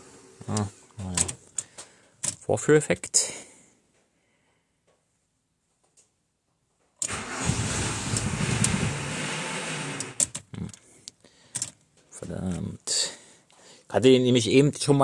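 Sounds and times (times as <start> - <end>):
starter cranking engine: 7.0 - 10.3.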